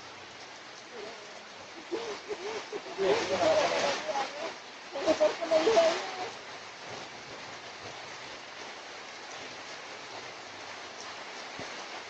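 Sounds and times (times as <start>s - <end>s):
steady rain: 0.0s - 12.0s
person's voice: 0.9s - 6.4s.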